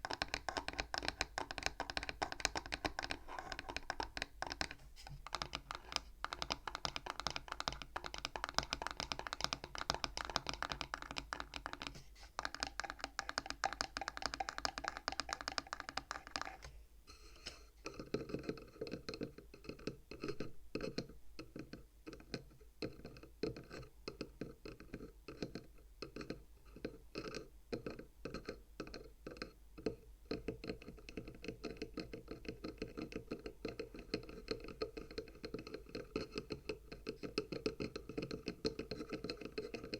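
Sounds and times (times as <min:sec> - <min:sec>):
fingernails tapping on wood: 0:00.0 - 0:16.7.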